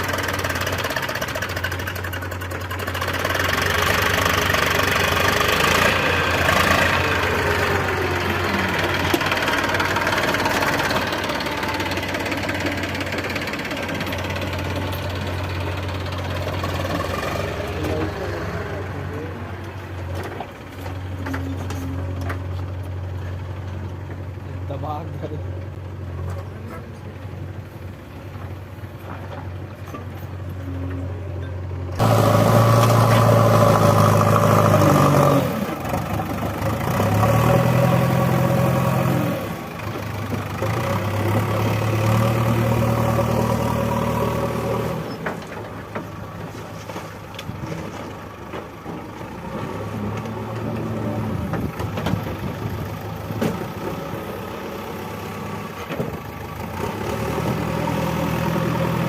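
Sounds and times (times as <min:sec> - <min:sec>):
backhoe diesel engine revving: 0:00.0 - 0:59.0.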